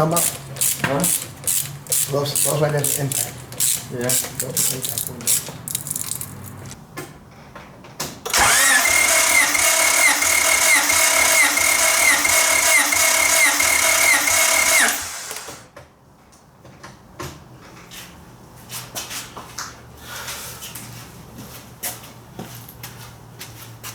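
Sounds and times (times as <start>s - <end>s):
starter motor cranking engine: 0.0s - 6.8s, 8.3s - 15.7s.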